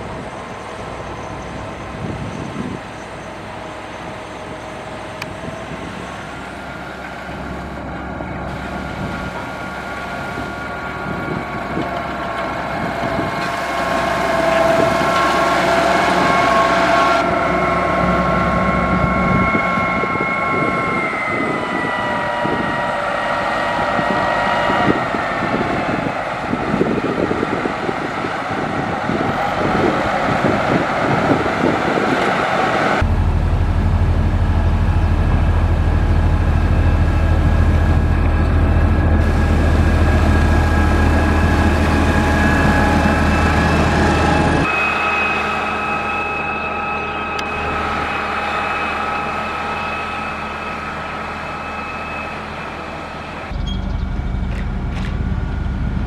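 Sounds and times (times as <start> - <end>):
heavy diesel machinery running: 0.0 - 56.0
whining tones: 12.7 - 56.0
deep low drone: 32.9 - 56.0.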